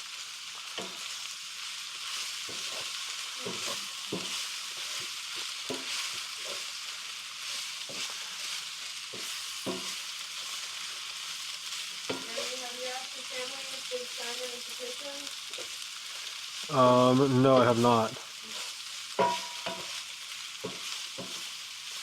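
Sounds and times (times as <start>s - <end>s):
vegetables sizzling in a frying pan: 0.0s - 22.0s
utensil scraping and knocking pan: 2.5s - 6.7s, 9.1s - 10.0s, 19.2s - 19.9s, 20.6s - 21.4s.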